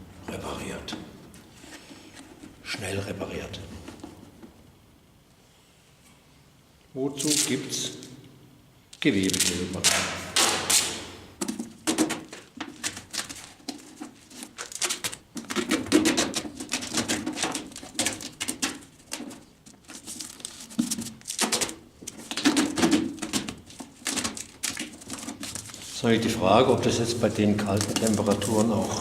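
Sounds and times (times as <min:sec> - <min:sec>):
duct tape pulled off roll: 0:09.2 - 0:11.2.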